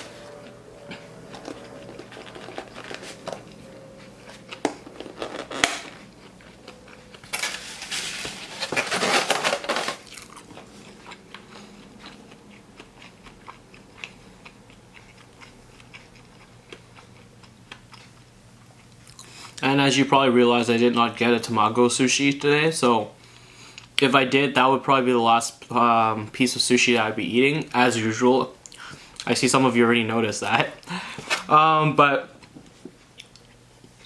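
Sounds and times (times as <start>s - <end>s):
close chewing with mouth clicks: 10.1s - 19.6s.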